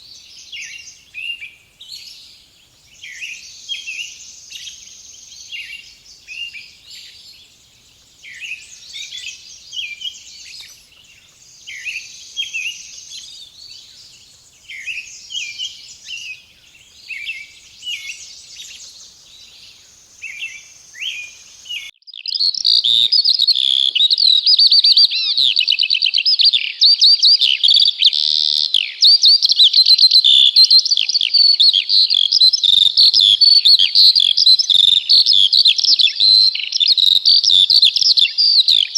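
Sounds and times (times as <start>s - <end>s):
steady high hiss: 0.0s - 21.9s
songbirds chirping and singing: 0.0s - 38.9s.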